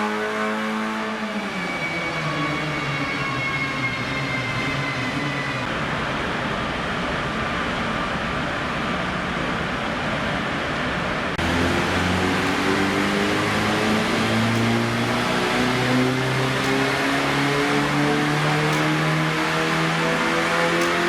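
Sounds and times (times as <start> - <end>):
race car engine running hard: 11.3 - 21.0
loud rushing sound: 11.4 - 21.0.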